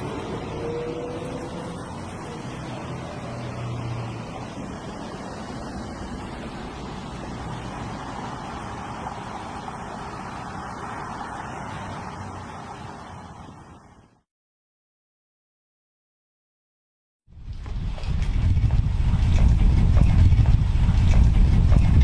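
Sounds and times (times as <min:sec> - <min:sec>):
steady rushing noise: 0:00.0 - 0:14.2, 0:17.3 - 0:22.0
low hum: 0:17.3 - 0:22.0.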